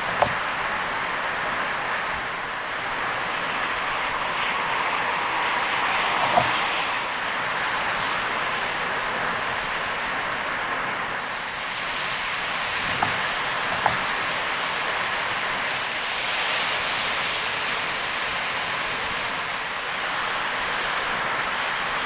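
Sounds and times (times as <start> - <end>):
sharp knocks: 0.0 - 0.6, 6.2 - 6.7, 12.8 - 14.2
tyres on wet road: 0.0 - 22.0.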